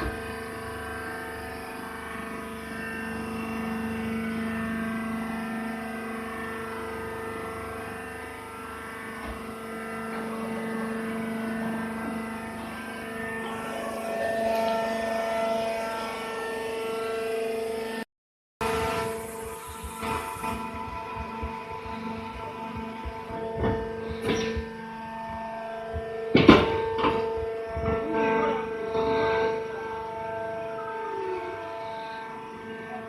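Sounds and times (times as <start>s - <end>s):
hydraulic baler droning hum: 0.0s - 18.0s, 18.6s - 33.0s.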